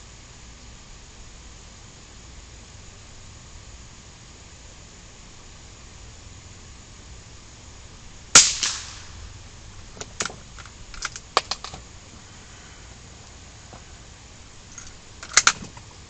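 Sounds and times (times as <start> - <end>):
weaker crack: 8.3 - 11.9
gunshot: 8.4 - 9.2
sharp clicks: 10.0 - 11.8.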